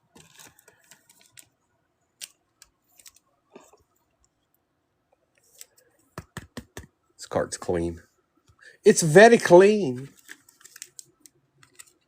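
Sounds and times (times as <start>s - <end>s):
trading cards shuffled: 0.1s - 1.6s, 2.2s - 3.3s, 5.4s - 6.8s, 9.9s - 12.0s.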